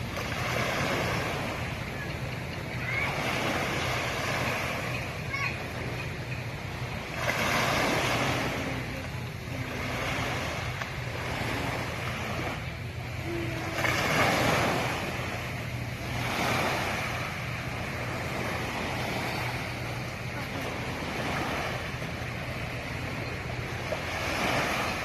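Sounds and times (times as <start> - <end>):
sea waves breaking: 0.0 - 25.0
steady low hum: 0.0 - 25.0.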